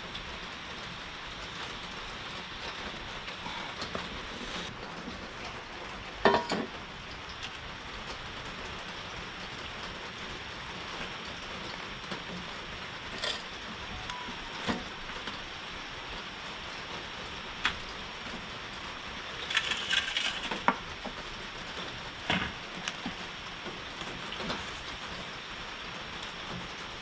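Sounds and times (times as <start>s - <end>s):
heavy rain: 0.0s - 27.0s.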